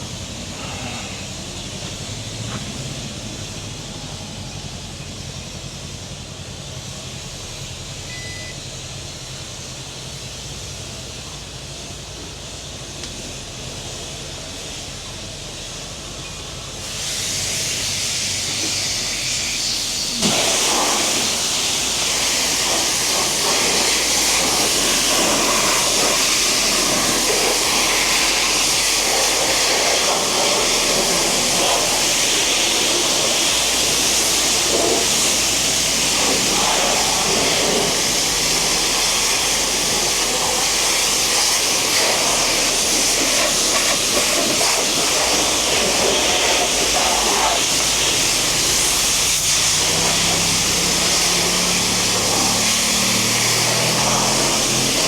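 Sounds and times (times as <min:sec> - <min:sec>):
water spraying from nozzle: 0:16.8 - 0:55.0.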